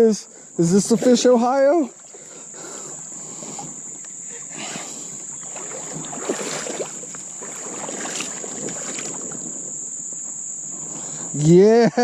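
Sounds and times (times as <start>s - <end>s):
creek water splashing: 0.0s - 11.4s
crickets droning: 0.0s - 12.0s.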